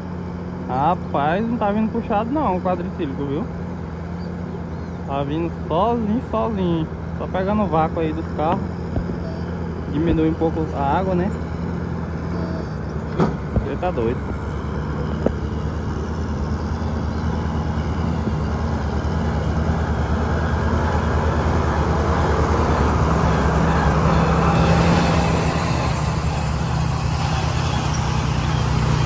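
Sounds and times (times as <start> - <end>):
vehicle engine running: 0.0 - 29.0
rushing noise: 13.6 - 29.0.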